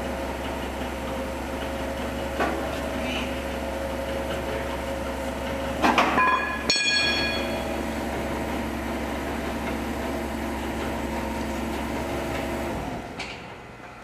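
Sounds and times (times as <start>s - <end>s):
forklift engine running: 0.0s - 14.0s
sharp metallic clang: 6.1s - 7.7s.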